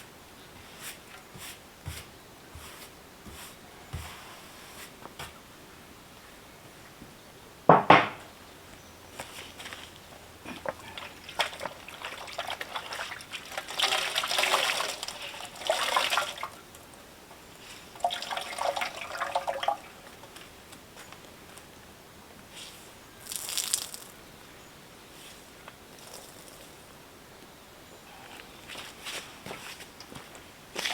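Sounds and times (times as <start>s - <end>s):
sharp knock: 7.7s - 8.3s
water pouring and splashing: 10.5s - 17.0s, 17.6s - 20.6s, 23.2s - 24.2s.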